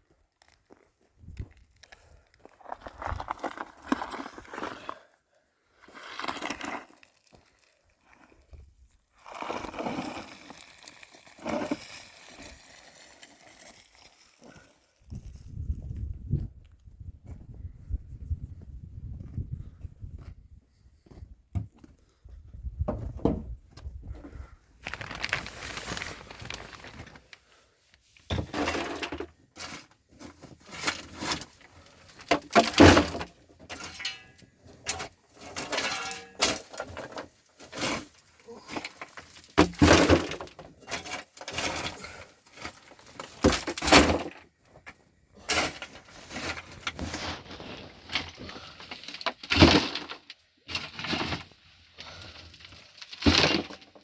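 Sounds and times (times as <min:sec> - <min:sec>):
crunching: 0:01.4 - 0:05.1, 0:24.8 - 0:27.4.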